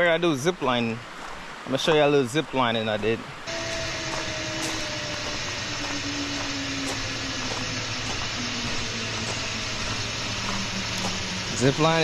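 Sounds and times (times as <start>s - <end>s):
zip line trolley whirring on cable: 3.5s - 12.0s.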